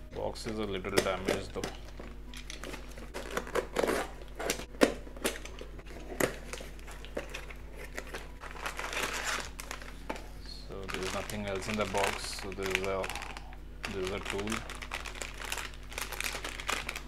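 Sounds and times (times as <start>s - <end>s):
cardboard crinkling: 0.4s - 17.0s
tape and cardboard tearing: 2.6s - 9.6s.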